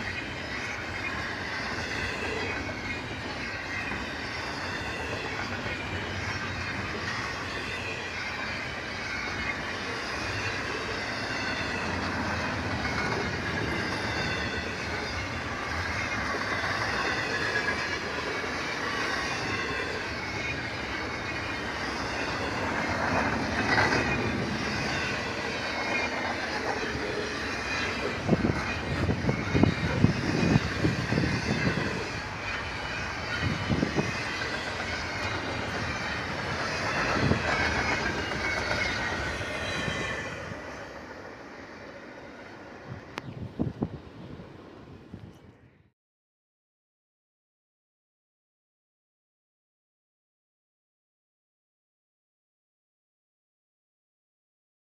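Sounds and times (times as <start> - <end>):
wheels clacking over rail joints: 0.0 - 43.3
train wheels squealing: 0.0 - 45.7
freight train rumbling past: 0.0 - 45.9.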